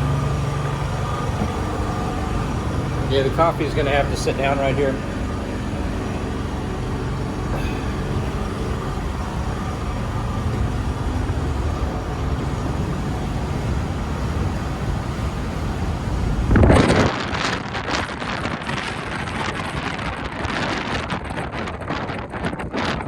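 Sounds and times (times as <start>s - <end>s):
low steady hum: 0.0s - 16.8s
strong wind blowing: 0.0s - 23.0s.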